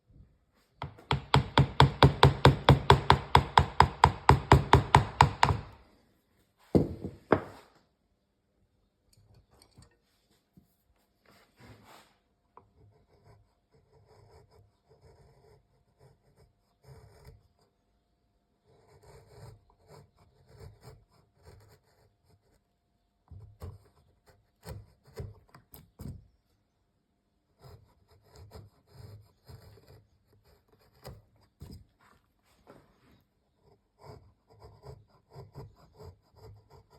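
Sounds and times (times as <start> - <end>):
knocks on wood: 0.8 - 5.8, 6.7 - 7.6.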